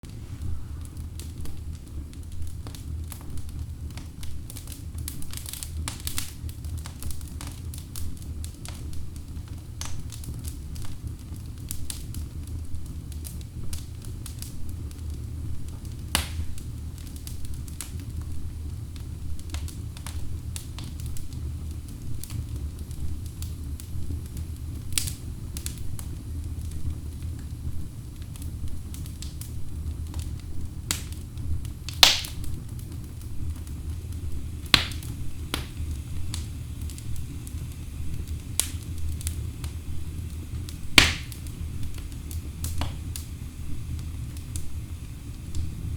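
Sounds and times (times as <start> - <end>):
logs crackling and popping: 0.0 - 45.9
low rumble of flames: 0.0 - 45.9.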